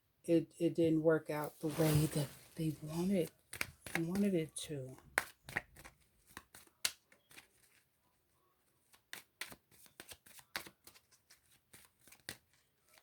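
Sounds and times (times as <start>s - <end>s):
cards being shuffled: 1.5s - 7.9s, 8.8s - 13.0s.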